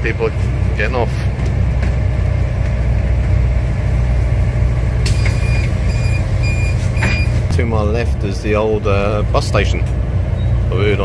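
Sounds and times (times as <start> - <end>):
bus diesel engine idling: 0.0 - 11.0
high electronic beeping: 5.2 - 7.3.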